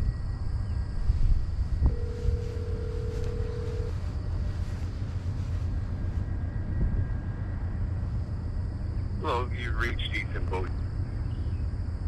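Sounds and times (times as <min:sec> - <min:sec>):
steady low rumble: 0:00.0 - 0:12.0
telephone ringback tone: 0:01.9 - 0:04.0.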